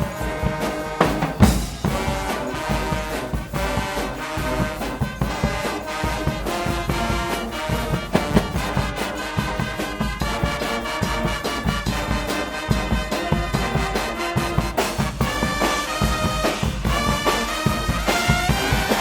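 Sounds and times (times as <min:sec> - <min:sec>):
carnival band playing: 0:00.0 - 0:19.0
heavy drum hit: 0:01.0 - 0:02.3, 0:07.8 - 0:09.8.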